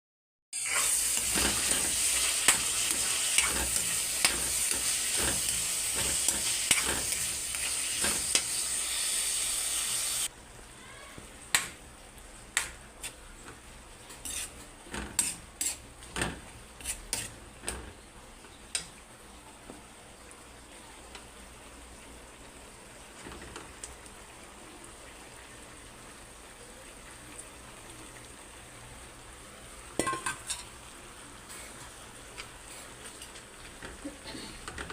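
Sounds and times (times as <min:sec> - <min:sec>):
chicken sizzling in hot oil: 0:00.5 - 0:10.3
utensil clinking against pan: 0:30.0 - 0:30.7.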